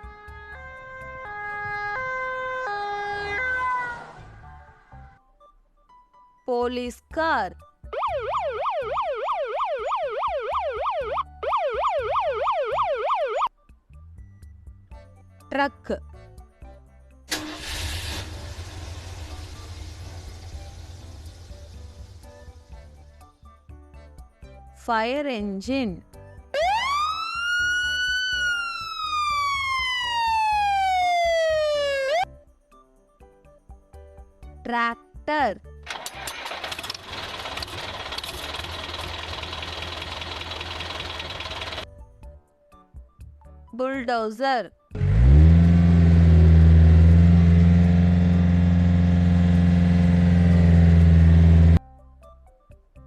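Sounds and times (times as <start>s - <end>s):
fire engine siren wailing: 0.0s - 4.4s, 8.0s - 13.5s, 26.6s - 32.2s, 45.1s - 51.8s
bulldozer diesel engine droning: 17.3s - 23.0s, 35.9s - 41.8s, 45.0s - 51.8s.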